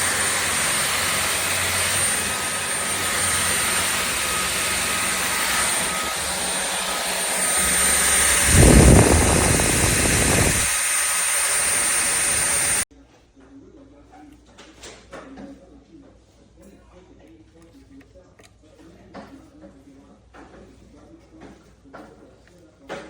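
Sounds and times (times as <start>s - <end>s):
stick vacuum running with whine: 0.0s - 12.8s
loud low rumble: 6.0s - 12.8s.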